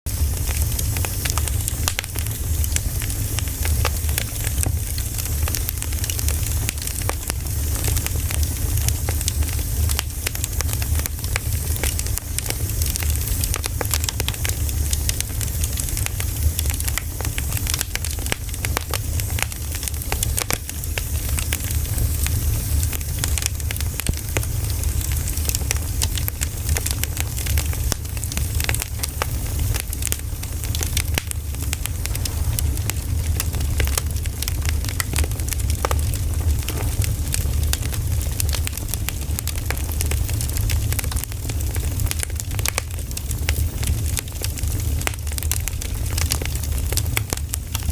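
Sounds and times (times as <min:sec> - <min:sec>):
firewood crackling and popping: 0:00.1 - 0:47.9
low rumble: 0:16.9 - 0:40.2.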